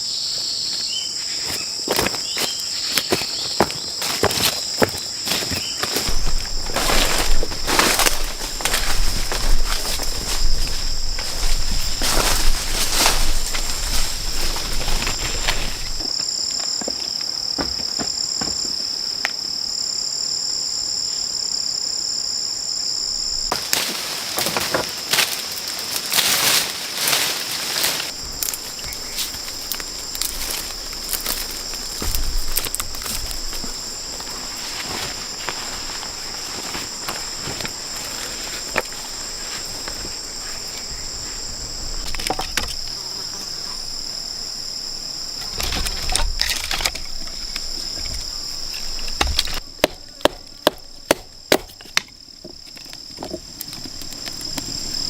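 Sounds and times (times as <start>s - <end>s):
rainforest insects chorus: 0.0s - 55.0s
rustling: 6.0s - 16.1s, 23.2s - 44.2s.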